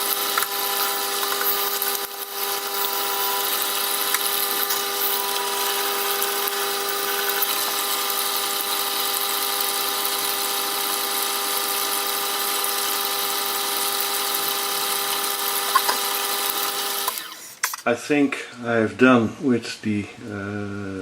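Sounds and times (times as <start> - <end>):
sharpening machine motor humming: 0.0 - 17.8
knife grinding on water stone: 0.2 - 9.8.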